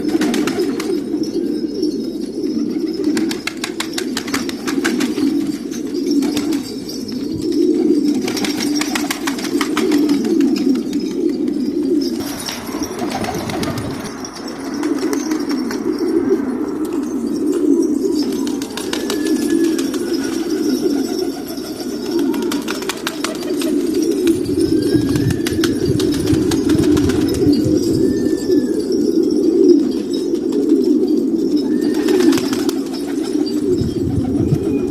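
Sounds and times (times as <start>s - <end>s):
wings flapping and clattering: 0.0s - 1.4s, 2.2s - 28.2s, 31.7s - 34.9s
pigeons cooing: 0.0s - 34.9s.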